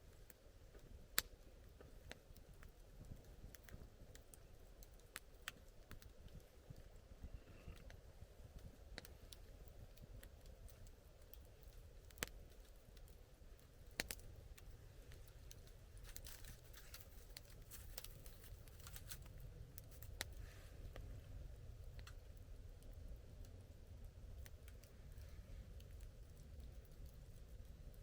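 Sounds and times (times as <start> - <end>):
campfire crackling and popping: 0.0 - 28.0.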